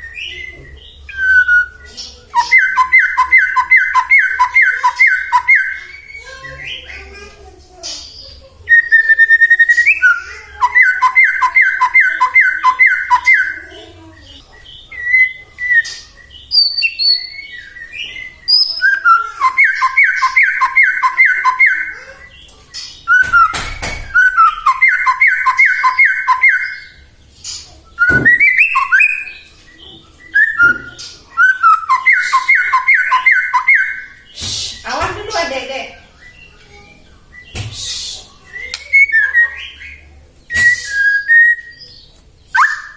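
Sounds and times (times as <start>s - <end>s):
songbird singing: 0.0s - 42.9s
brief knocks: 28.0s - 28.5s
short whistles and high chirps: 40.5s - 41.8s, 42.6s - 42.9s.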